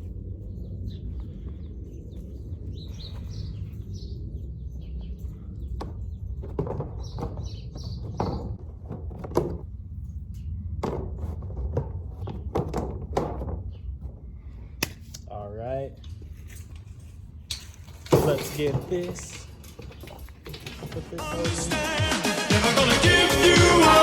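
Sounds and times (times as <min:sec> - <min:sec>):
steady low rumble: 0:00.0 - 0:06.4
knocks and rustles: 0:05.0 - 0:15.2, 0:16.0 - 0:21.7.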